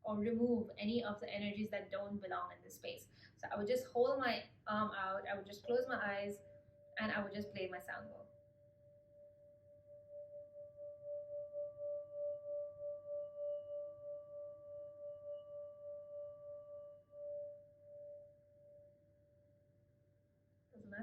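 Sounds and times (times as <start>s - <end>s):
singing bowl ringing: 6.4s - 19.6s.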